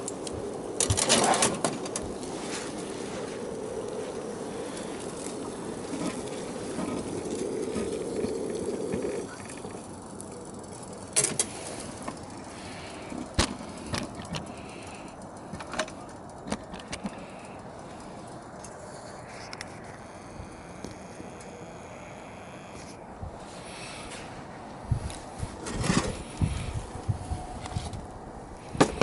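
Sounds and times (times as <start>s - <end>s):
water boiling hard: 2.1s - 13.1s.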